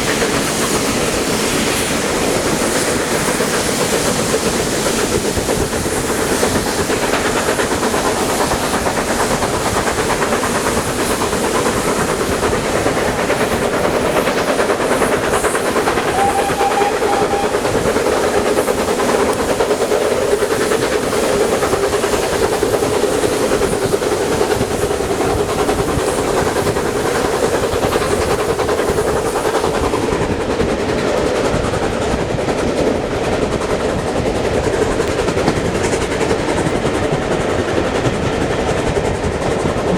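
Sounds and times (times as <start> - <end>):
steam hiss: 0.0 - 31.2
train wheels clattering on track: 0.0 - 39.9.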